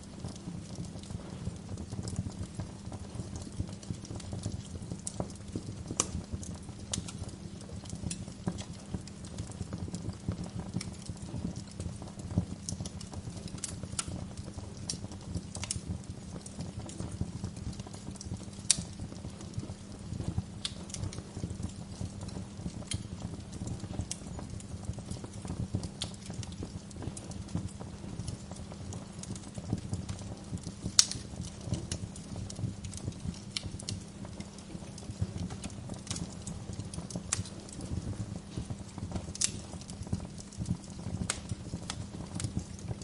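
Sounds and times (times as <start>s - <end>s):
wood fire crackling: 0.0s - 43.0s
sharp pops and snaps: 0.2s - 43.0s.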